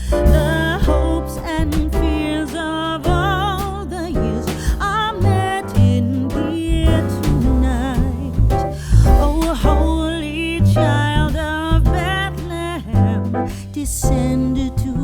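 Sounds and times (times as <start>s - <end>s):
bass line: 0.0s - 15.0s.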